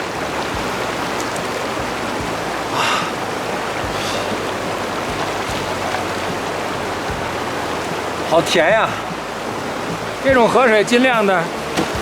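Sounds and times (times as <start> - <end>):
stream running over rocks: 0.0 - 12.0
water splash: 0.0 - 12.0.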